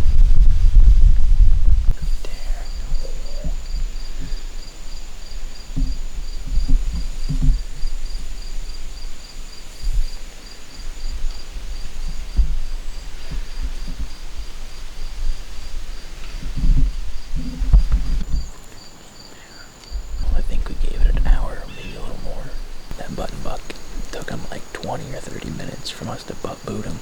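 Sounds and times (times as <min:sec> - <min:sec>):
soft low thumps: 0:00.0 - 0:10.2, 0:10.8 - 0:18.5
crickets chirping: 0:00.0 - 0:27.0
insect's thin steady trill: 0:00.0 - 0:27.0.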